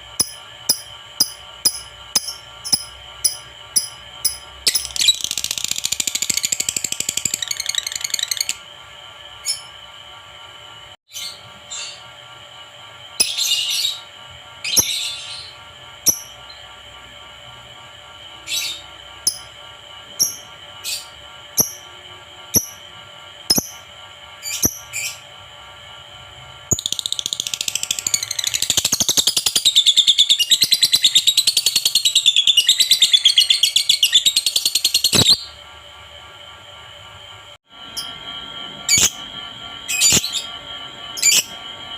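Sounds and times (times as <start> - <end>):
lovebird chirping and trilling: 0.2 - 8.6, 13.2 - 16.6, 24.4 - 25.2, 26.7 - 35.6, 39.9 - 40.5, 41.2 - 41.6.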